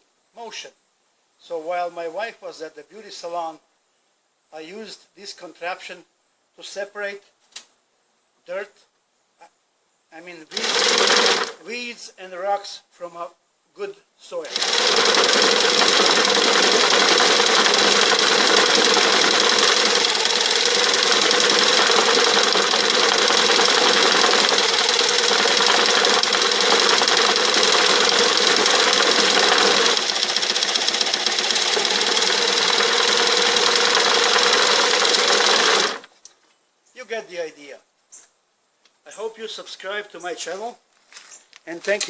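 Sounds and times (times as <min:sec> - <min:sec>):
jigsaw rattling milk crate: 0:10.5 - 0:11.6, 0:14.5 - 0:36.1.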